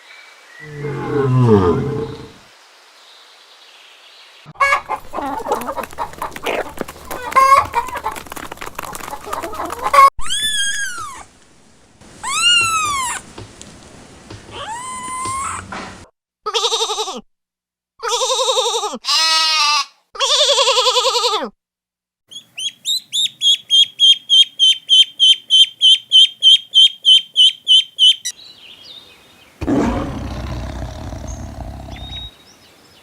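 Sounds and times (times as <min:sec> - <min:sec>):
chickens clucking: 0:04.6 - 0:10.1.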